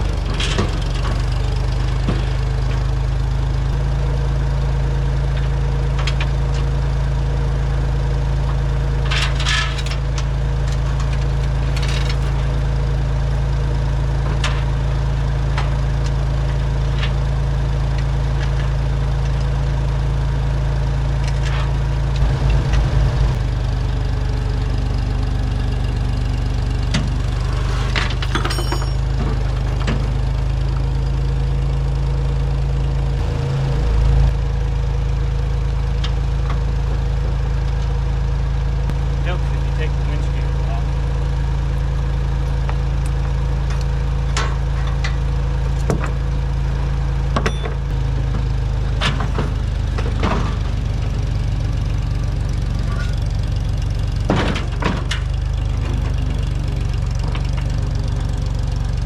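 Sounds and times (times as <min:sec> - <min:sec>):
metal handling clicks and knocks: 0:00.0 - 0:01.4, 0:09.0 - 0:12.5, 0:27.9 - 0:30.1
machine low drone: 0:00.0 - 0:59.0.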